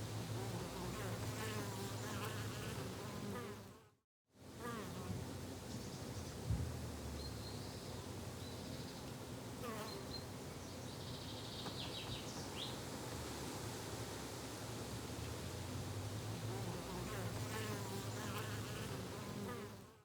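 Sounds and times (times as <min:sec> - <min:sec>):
insects buzzing: 0:00.3 - 0:03.7, 0:16.4 - 0:20.0.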